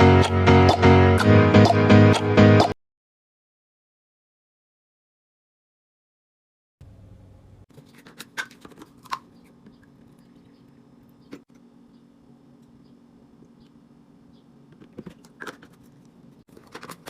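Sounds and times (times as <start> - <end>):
items being handled: 7.7 - 11.7, 14.7 - 17.0.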